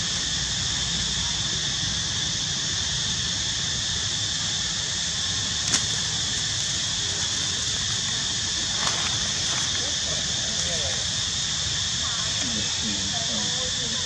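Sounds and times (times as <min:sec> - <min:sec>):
high even hiss: 0:00.0 - 0:14.0.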